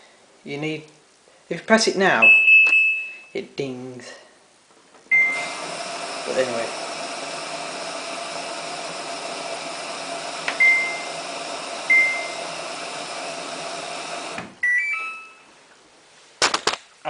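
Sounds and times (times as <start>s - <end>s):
beeps at different pitches: 2.2s - 3.4s, 5.1s - 5.4s, 10.6s - 11.1s, 14.6s - 15.5s
high electronic beep: 2.2s - 3.4s, 14.6s - 15.5s
electrical hum: 5.0s - 15.6s.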